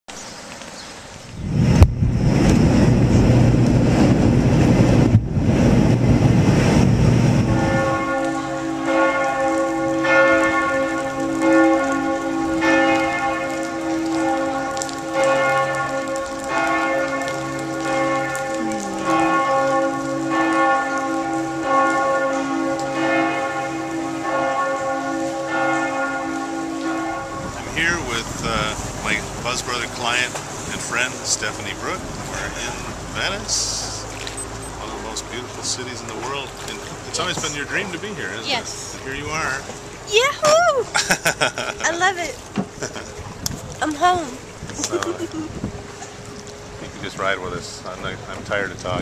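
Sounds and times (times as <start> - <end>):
heavy rain: 0.0 - 49.0
church bells ringing: 7.4 - 28.2.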